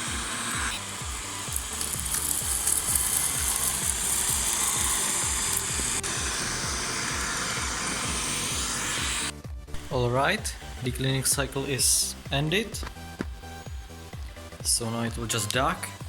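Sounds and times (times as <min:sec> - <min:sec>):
robot vacuum whirring on hard floor: 0:00.0 - 0:09.3
background music with steady beat: 0:00.0 - 0:16.0.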